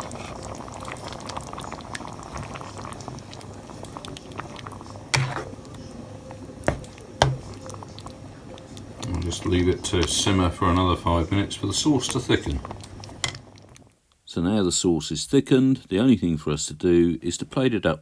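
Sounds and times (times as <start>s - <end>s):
sauce bubbling in a pan: 0.0s - 13.9s.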